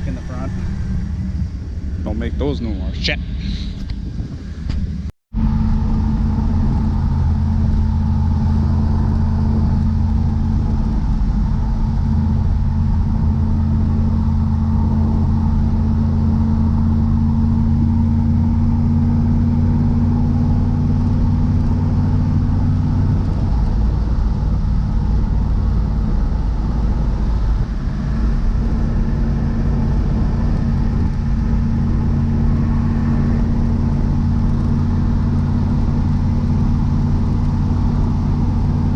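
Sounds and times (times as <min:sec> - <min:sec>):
car engine low drone: 0:00.0 - 0:38.9.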